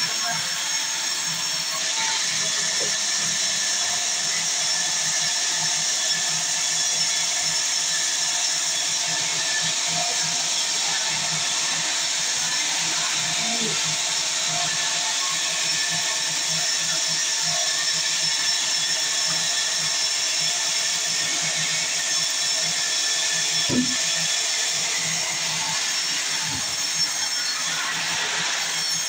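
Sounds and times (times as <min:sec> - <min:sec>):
sawmill saw hissing: 0:00.0 - 0:29.0
brief knock: 0:23.7 - 0:24.0.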